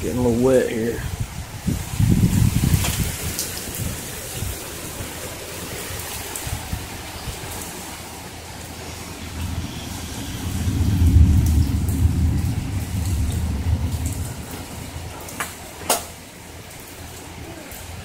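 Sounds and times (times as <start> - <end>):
steady rain: 0.0 - 18.0
rolling thunder: 9.2 - 16.2.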